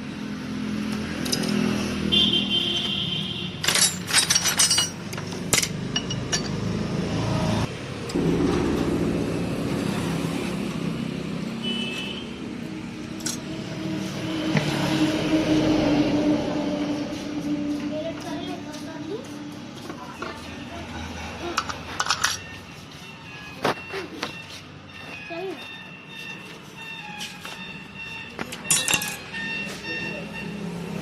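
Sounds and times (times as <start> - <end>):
metal tools clinking and scraping: 3.6 - 6.8, 13.1 - 13.6, 21.4 - 23.0, 28.2 - 29.9
low engine-like hum: 7.9 - 11.8.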